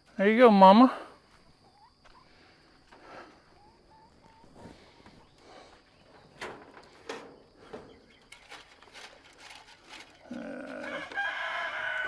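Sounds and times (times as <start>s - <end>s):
rooster crowing: 10.3s - 12.0s.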